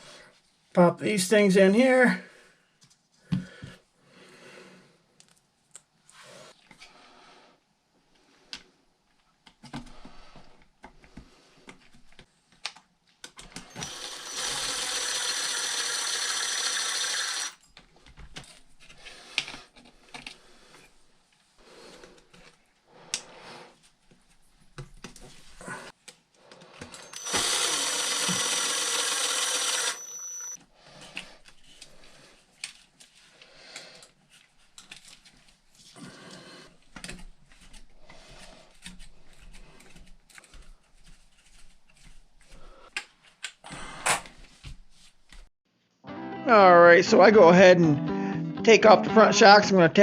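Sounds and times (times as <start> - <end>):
whirring with high whine: 27.0 - 30.6.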